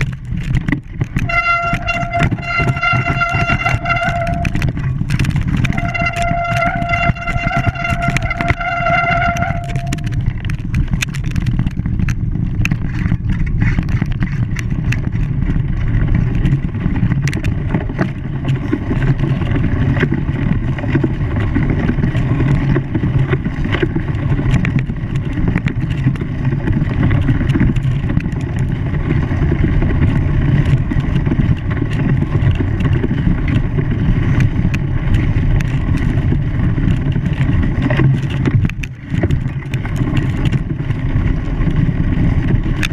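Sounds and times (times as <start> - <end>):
engine running with low rumble: 0.0 - 42.9.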